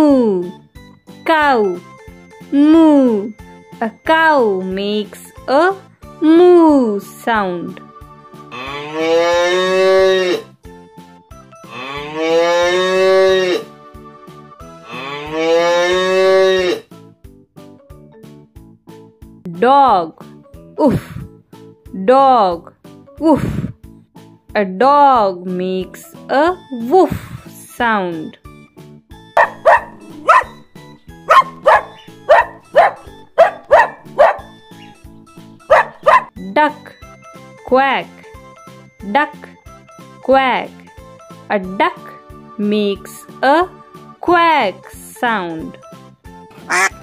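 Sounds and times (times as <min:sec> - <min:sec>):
light background music: 0:00.0 - 0:47.0
cow mooing: 0:08.5 - 0:10.4, 0:11.7 - 0:13.7, 0:14.8 - 0:16.8, 0:29.4 - 0:32.0, 0:46.7 - 0:47.0
small dog barking sharply: 0:29.4 - 0:30.6, 0:31.3 - 0:34.5, 0:35.7 - 0:36.3, 0:46.7 - 0:47.0.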